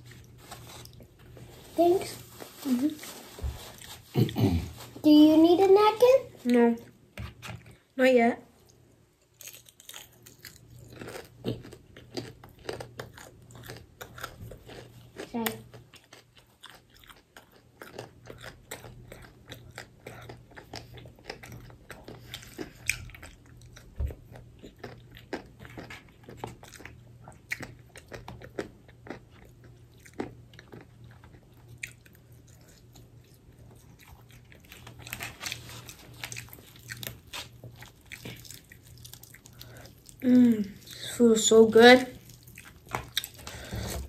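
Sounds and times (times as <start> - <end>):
crunching crispy fried chicken: 9.3 - 23.9, 24.7 - 41.0.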